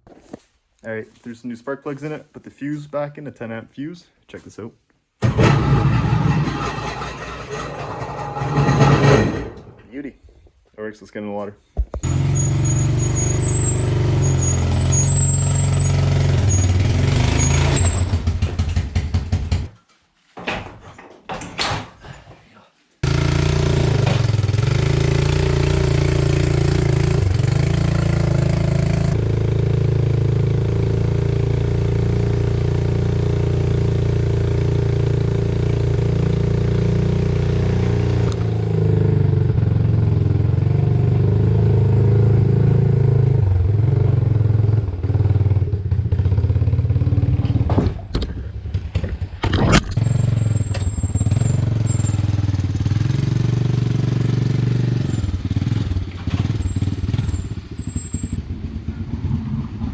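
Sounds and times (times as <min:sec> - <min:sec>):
sharp noisy engine bursts: 0:05.2 - 0:09.8.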